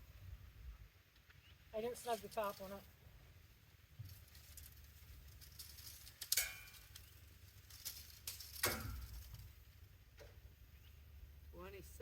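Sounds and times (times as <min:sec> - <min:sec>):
metal clinking and knocking: 0:04.0 - 0:09.6.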